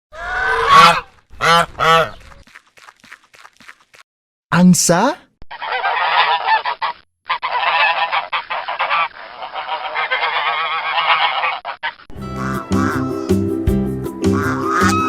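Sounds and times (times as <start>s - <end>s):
geese honking: 0.1s - 2.3s, 5.5s - 13.4s, 14.2s - 15.0s.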